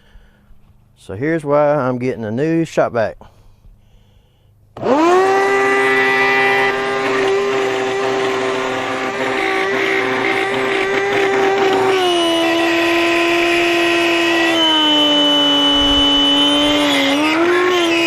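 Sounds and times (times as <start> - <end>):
vacuum motor high-pitched scream: 4.8 - 18.0.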